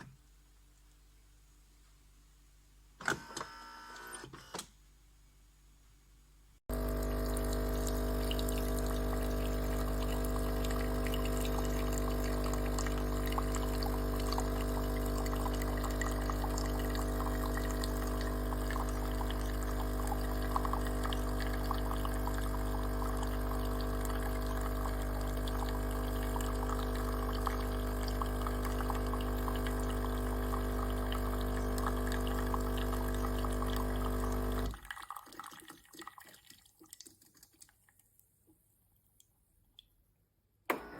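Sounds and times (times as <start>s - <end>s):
espresso machine pump humming: 6.7s - 34.8s
liquid pouring into cup: 6.7s - 38.0s
drips: 7.0s - 38.2s.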